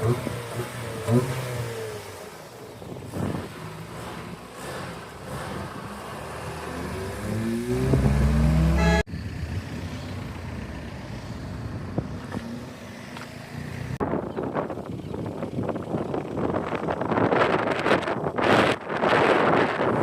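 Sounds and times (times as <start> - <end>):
car engine accelerating: 0.0 - 14.1
vehicle noise: 0.0 - 20.0.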